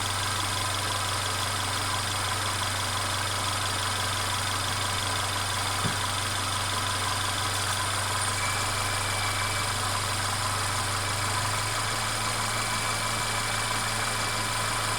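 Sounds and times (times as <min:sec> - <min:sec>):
car engine idling: 0:00.0 - 0:14.9
engine rattle: 0:00.0 - 0:14.9.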